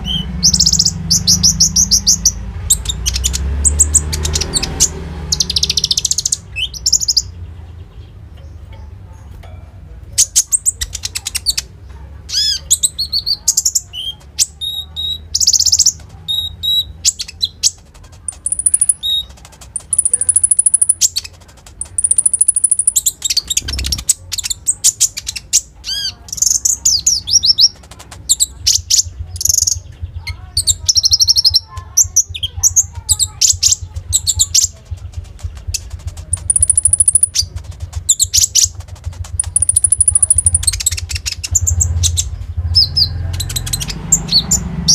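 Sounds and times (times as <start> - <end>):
bird singing chirps and trills: 0.0 - 44.9.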